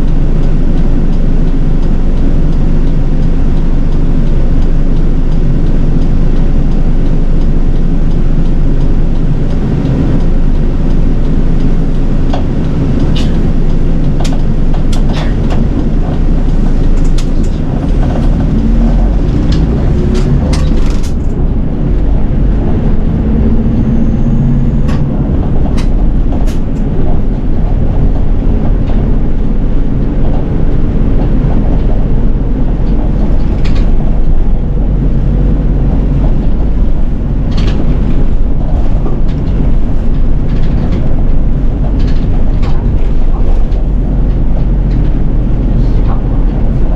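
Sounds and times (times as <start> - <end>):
bus engine and road rumble: 0.0 - 46.9
clicks and rattles: 32.6 - 34.4.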